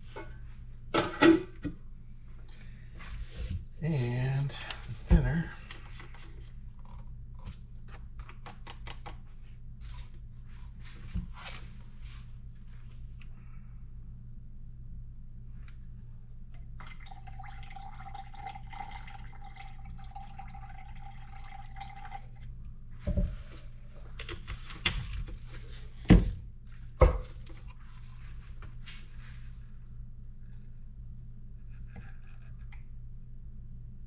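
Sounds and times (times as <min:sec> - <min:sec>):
steady low hum: 0:00.0 - 0:08.4, 0:09.2 - 0:20.9
liquid pouring into cup: 0:16.7 - 0:22.4.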